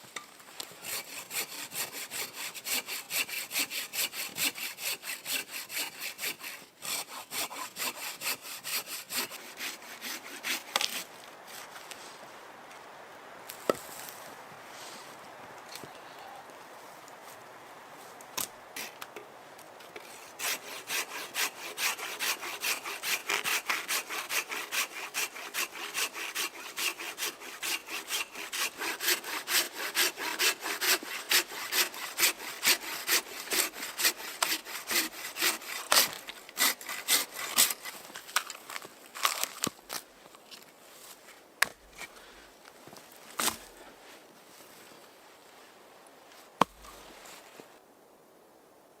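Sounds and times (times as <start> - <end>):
hand saw cutting wood: 0.8 - 11.1, 20.0 - 39.6.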